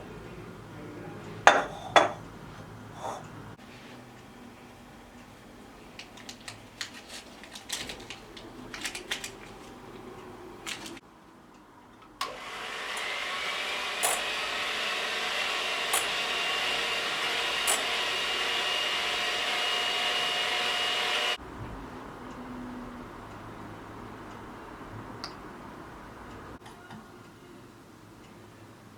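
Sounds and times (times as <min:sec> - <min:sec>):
kitchen appliance motor whine: 0:12.2 - 0:21.4.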